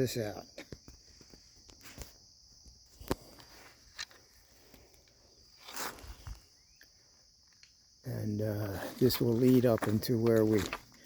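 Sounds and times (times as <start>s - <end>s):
high-pitched insect drone: 0.0s - 9.4s
rustle: 1.0s - 7.8s
footsteps on dry ground: 8.3s - 11.0s.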